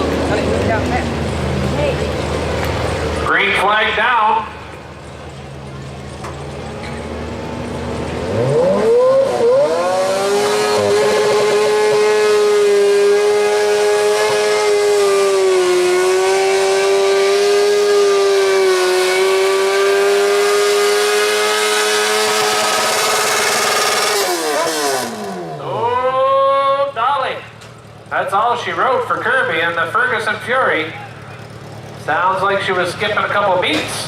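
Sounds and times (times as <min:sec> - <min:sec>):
motorcycle engine at full throttle: 0:04.3 - 0:34.0.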